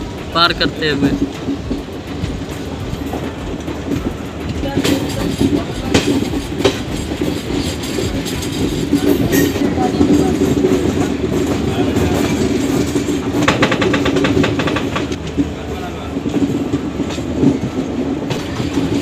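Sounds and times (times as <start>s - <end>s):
train coaches rumbling: 0.0s - 19.0s
wheels clicking over rail joints: 0.0s - 19.0s.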